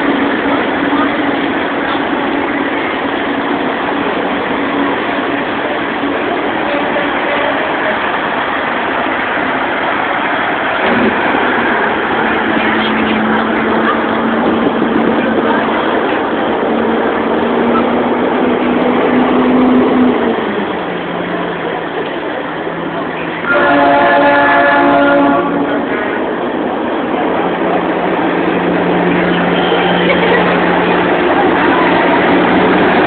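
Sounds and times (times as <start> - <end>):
trucks rumbling past: 0.0 - 33.0
multi-note air horn: 23.4 - 25.6.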